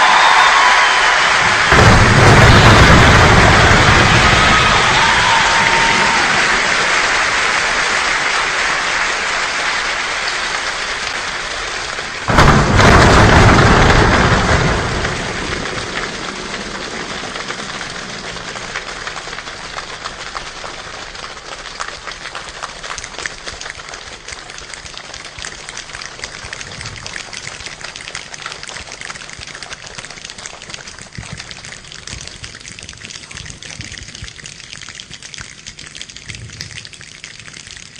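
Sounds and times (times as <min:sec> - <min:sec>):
heavy rain-like patter: 0:00.0 - 0:37.9
thunder-like burst: 0:01.2 - 0:07.4, 0:12.2 - 0:19.7.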